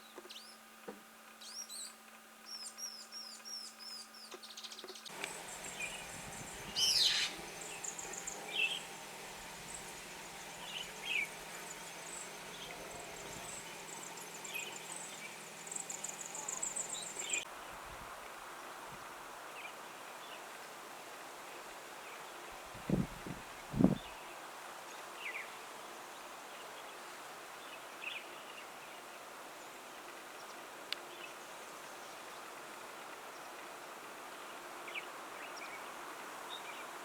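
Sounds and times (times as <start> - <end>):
birds chirping: 5.0 - 17.8
high thin bird trills: 5.1 - 17.4.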